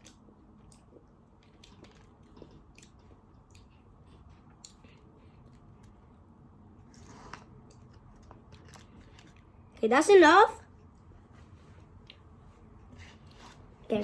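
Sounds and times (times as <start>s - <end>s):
person chewing food: 0.0s - 9.6s.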